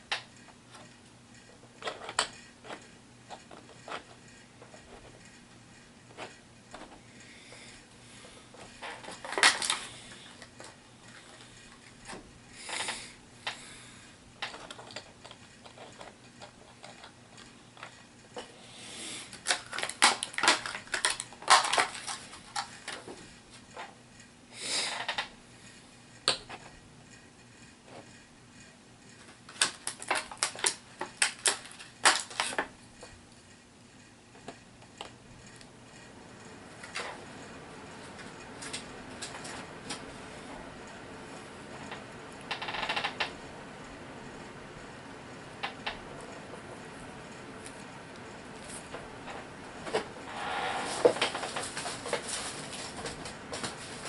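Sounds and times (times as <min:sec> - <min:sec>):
packaging rustling: 0:08.6 - 0:11.3, 0:19.3 - 0:23.0, 0:29.5 - 0:32.6, 0:50.9 - 0:54.0.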